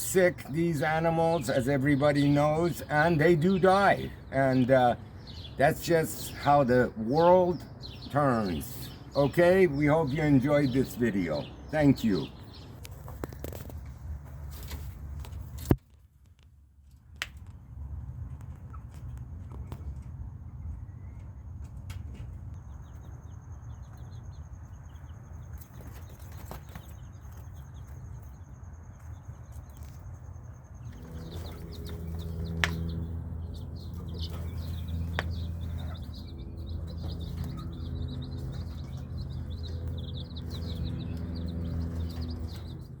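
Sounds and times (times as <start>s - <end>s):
baby chicks peeping: 0.0s - 15.8s, 17.7s - 43.0s
steady low hum: 30.1s - 43.0s.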